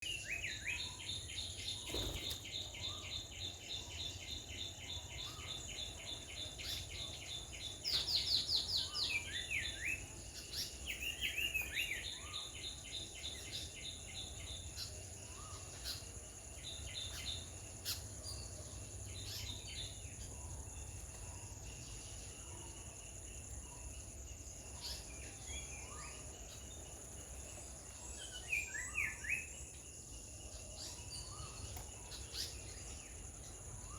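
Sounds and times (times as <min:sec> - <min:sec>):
rapid chirping bird calls: 0:00.0 - 0:22.9.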